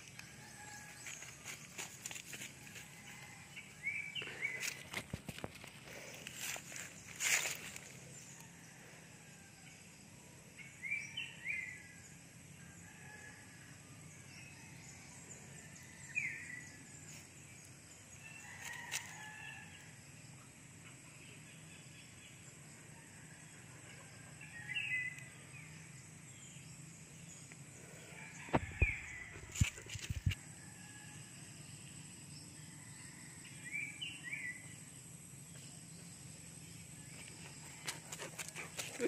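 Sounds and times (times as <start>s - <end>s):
faint outdoor ambience: 0.0s - 39.0s.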